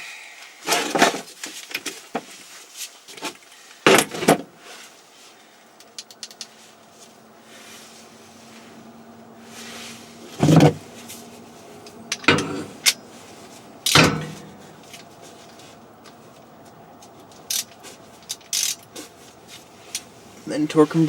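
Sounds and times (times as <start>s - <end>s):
metal tools clanking: 12.1s - 13.1s, 13.9s - 15.1s
sharp knocks: 14.0s - 14.6s.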